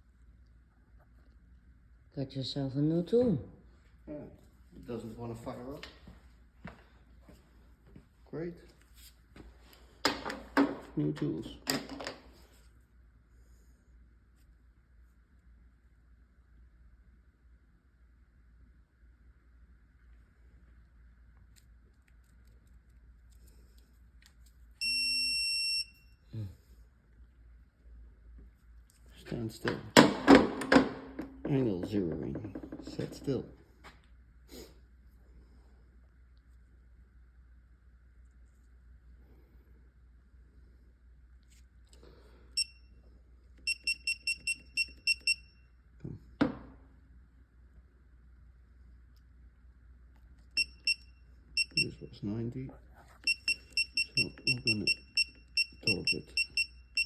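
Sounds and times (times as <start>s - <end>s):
electronic wrench beep: 24.8s - 26.2s, 42.6s - 42.9s, 43.7s - 45.6s, 50.6s - 52.0s, 53.2s - 57.0s.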